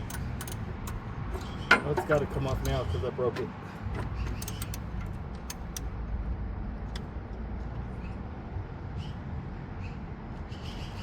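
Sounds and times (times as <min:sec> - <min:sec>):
hand tools clicking: 0:00.0 - 0:02.8, 0:04.3 - 0:05.8.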